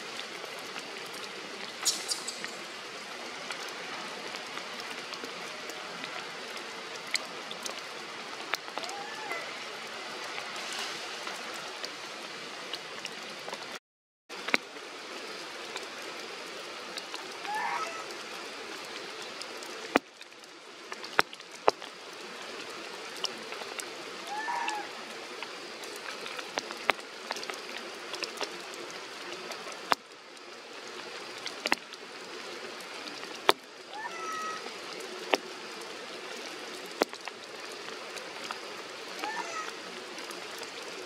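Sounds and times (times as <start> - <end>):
large raindrops clicking: 0.0 - 41.0
rain falling through foliage: 0.0 - 41.0.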